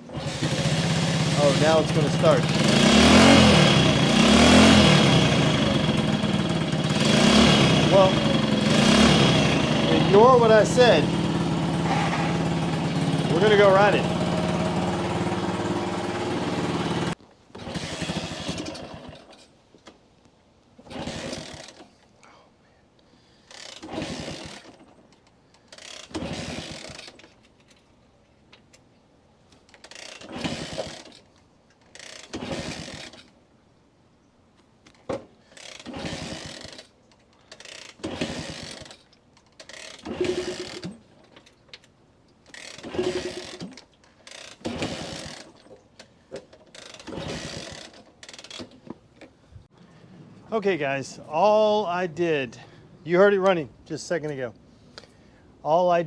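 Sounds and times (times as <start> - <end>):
small motorcycle engine running: 0.0 - 19.3, 23.8 - 24.7, 25.8 - 27.1, 29.9 - 31.1, 32.0 - 33.2, 35.6 - 36.9, 37.6 - 38.9, 39.6 - 41.0, 42.5 - 45.6, 46.7 - 48.6
kick-start ratcheting: 0.0 - 19.5, 20.9 - 21.9, 23.5 - 27.8, 29.6 - 33.4, 35.4 - 49.0.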